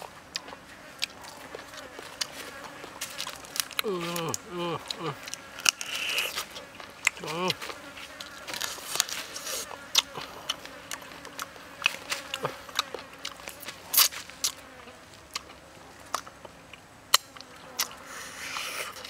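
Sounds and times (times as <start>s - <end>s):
chicken wing crunching: 0.0s - 14.6s
mouth smacks and clicks: 0.3s - 14.6s, 15.3s - 19.0s.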